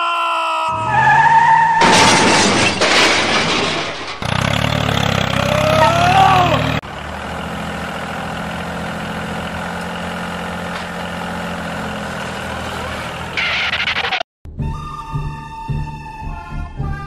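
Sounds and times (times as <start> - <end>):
tractor engine idling: 4.2 - 14.1.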